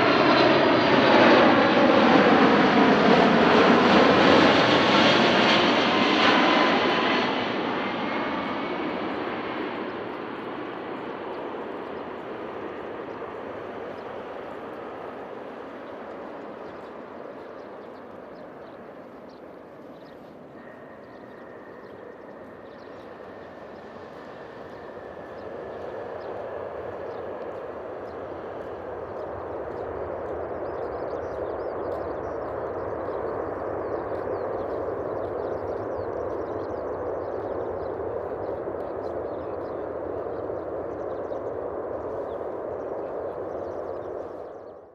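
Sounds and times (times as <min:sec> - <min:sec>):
jet engine roar: 0:00.0 - 0:44.8
faint high whine: 0:08.1 - 0:44.8.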